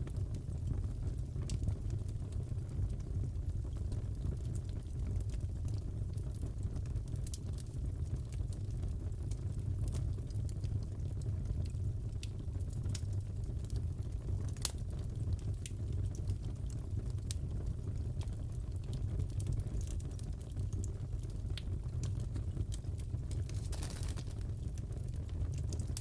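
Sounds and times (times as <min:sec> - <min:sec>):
fire crackling: 0:00.0 - 0:26.0
fire pops: 0:14.1 - 0:15.0, 0:19.2 - 0:26.0.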